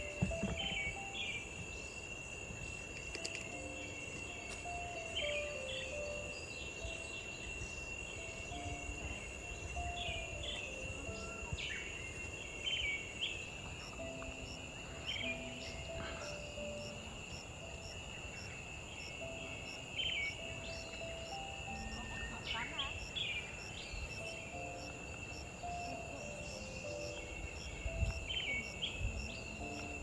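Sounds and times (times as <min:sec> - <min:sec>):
insect drone: 0:00.0 - 0:30.0
soft background music: 0:00.0 - 0:30.0
bird chirps: 0:17.8 - 0:30.0.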